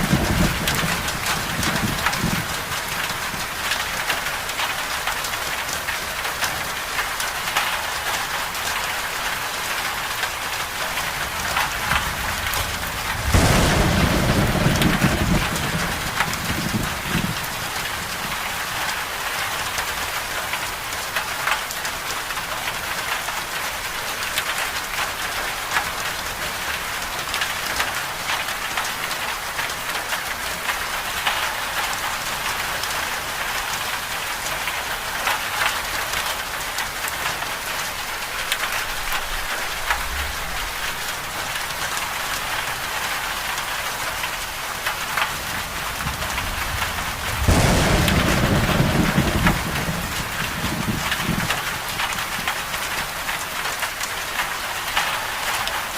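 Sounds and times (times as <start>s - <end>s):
thunder rumbling: 0.0s - 3.0s, 11.0s - 18.8s, 45.2s - 52.8s
steady rain falling: 0.0s - 55.9s.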